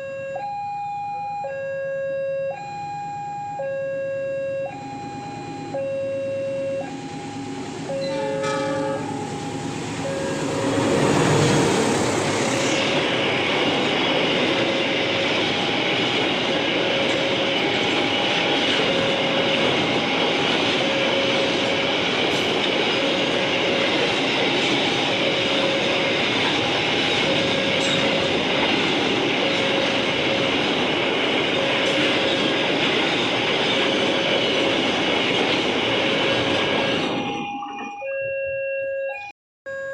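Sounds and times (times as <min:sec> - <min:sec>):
level crossing alarm two tones: 0:00.0 - 0:12.1, 0:36.8 - 0:39.9
train running noise: 0:04.6 - 0:38.1.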